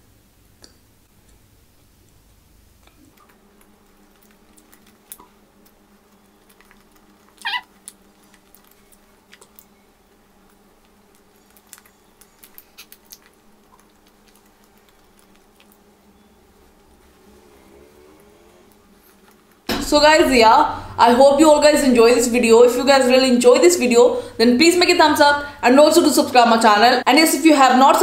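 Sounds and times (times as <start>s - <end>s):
faint steady hum: 0.0s - 28.0s
person chewing: 2.8s - 9.8s, 10.4s - 17.5s.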